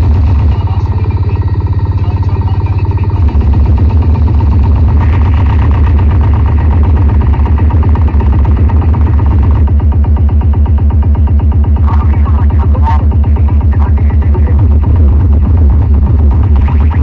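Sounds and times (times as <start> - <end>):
dj music with deep bass: 4.8 - 17.0.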